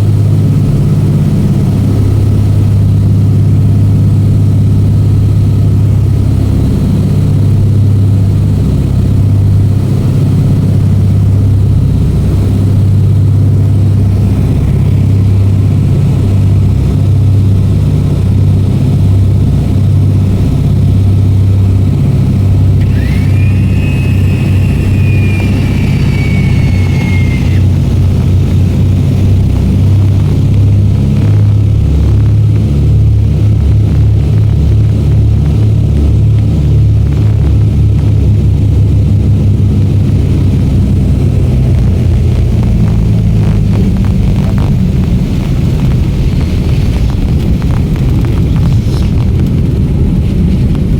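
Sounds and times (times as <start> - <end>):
propeller aircraft engines droning: 0.0 - 50.9
thin high whistle: 22.8 - 28.2.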